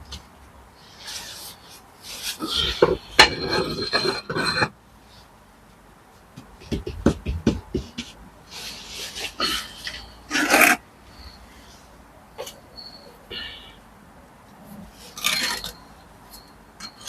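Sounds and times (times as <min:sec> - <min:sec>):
trowel scraping mortar: 0:02.2 - 0:04.7, 0:08.7 - 0:10.8
knocks on brick: 0:06.6 - 0:08.1.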